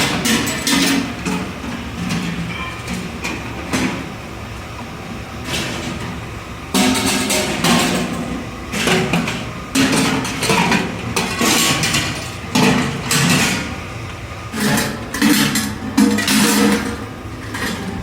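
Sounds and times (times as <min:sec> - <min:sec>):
metal clattering and banging: 0:14.5 - 0:18.0.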